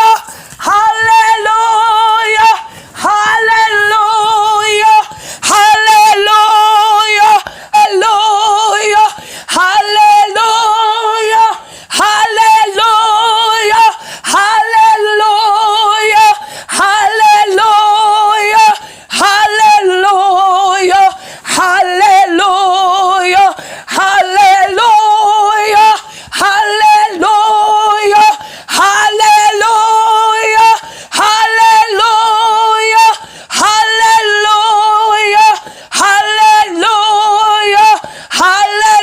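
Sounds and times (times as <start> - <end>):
woman singing: 0.0 - 39.0.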